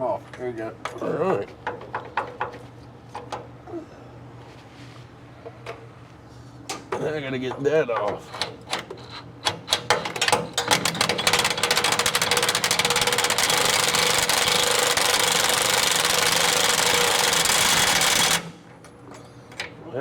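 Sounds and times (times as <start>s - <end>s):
impact wrench hammering: 1.6s - 2.6s.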